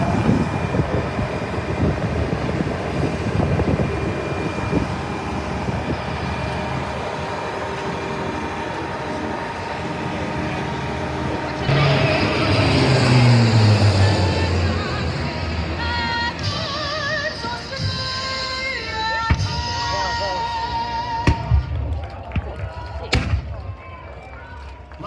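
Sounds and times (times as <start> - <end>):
aircraft engine drone: 0.0 - 21.8.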